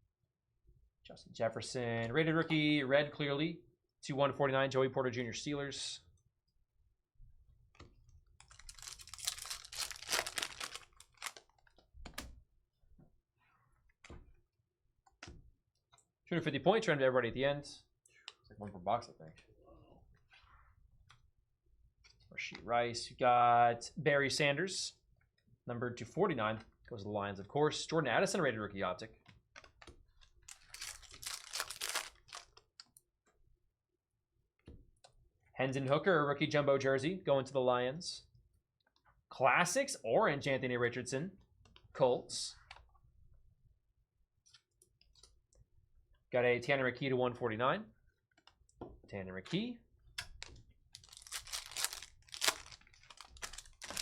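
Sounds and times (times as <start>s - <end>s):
trading cards rustling: 8.4s - 11.6s, 30.5s - 32.6s, 50.4s - 54.0s
foil wrappers crinkling: 8.5s - 11.6s, 30.5s - 32.5s, 50.4s - 54.0s.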